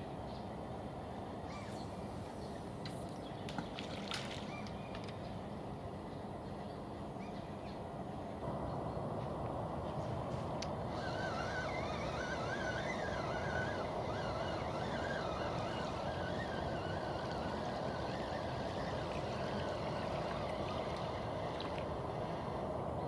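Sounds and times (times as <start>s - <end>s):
bird warbling song: 4.4s - 5.4s.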